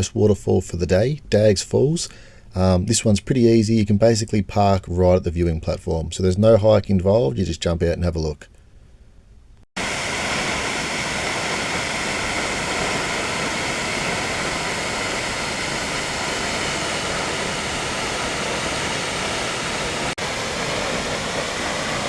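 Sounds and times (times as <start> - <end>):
waterfall roar: 9.8 - 22.0.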